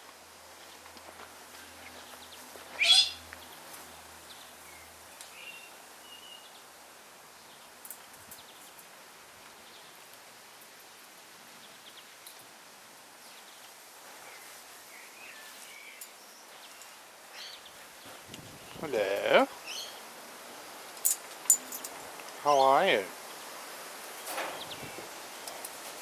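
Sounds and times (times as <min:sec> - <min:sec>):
faint bird chirps and calls: 0:02.8 - 0:03.2, 0:19.5 - 0:20.0
parrot screeching: 0:02.8 - 0:03.2.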